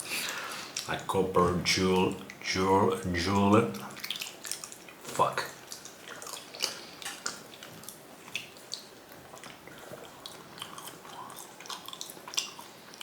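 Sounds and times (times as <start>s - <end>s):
mouth chewing wetly: 3.2s - 13.0s.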